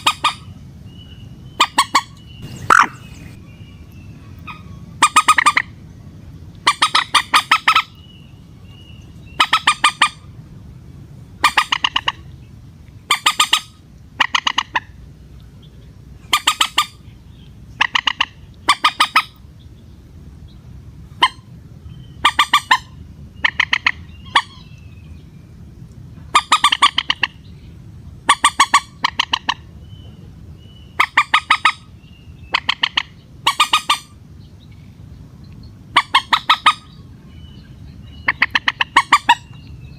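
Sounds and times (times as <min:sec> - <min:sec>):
moorhen stuttering clucks: 0:01.6 - 0:03.4, 0:04.5 - 0:05.7, 0:16.3 - 0:17.0, 0:26.3 - 0:27.4, 0:28.3 - 0:29.7, 0:35.9 - 0:36.9, 0:38.2 - 0:39.5.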